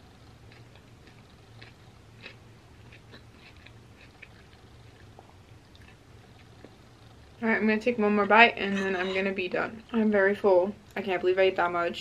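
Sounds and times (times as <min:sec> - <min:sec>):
low steady hum: 0:00.0 - 0:12.0
chewing with wet mouth clicks: 0:00.5 - 0:06.8.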